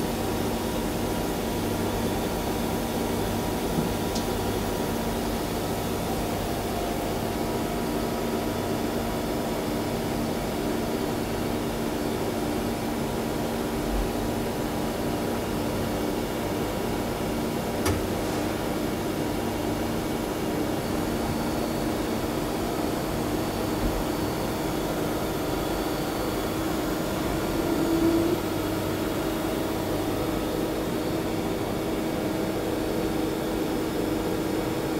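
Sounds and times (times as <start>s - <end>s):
machine whine: 19.6s - 33.0s
lathe machine hum: 20.3s - 32.9s.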